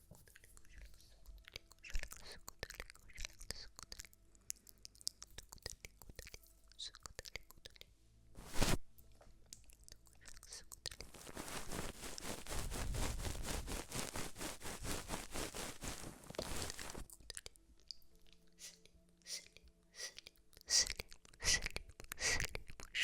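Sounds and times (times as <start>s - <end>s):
crisp crackling: 8.4s - 8.8s, 10.2s - 17.3s.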